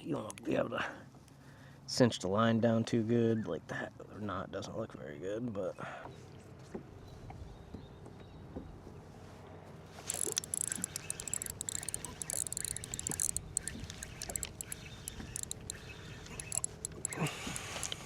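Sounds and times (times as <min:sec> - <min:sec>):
fishing reel clicking: 0:10.1 - 0:18.0.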